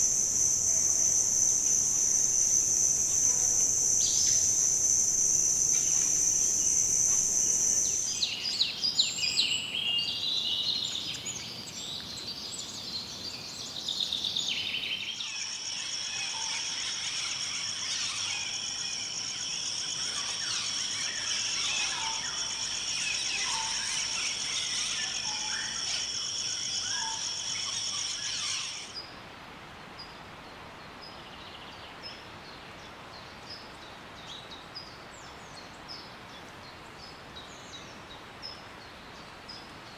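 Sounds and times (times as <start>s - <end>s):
high-pitched insect drone: 0.0s - 8.4s, 15.1s - 29.0s.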